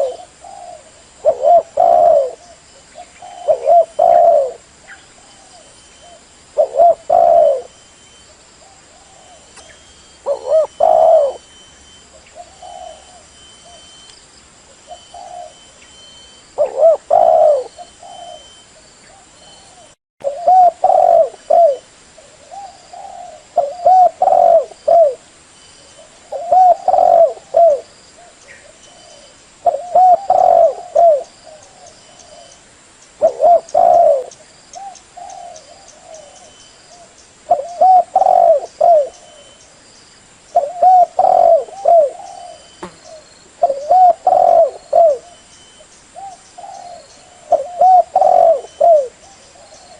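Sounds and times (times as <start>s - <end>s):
dove cooing: 0.0s - 14.0s, 14.8s - 25.2s, 25.8s - 32.6s, 33.2s - 39.6s, 40.6s - 49.9s.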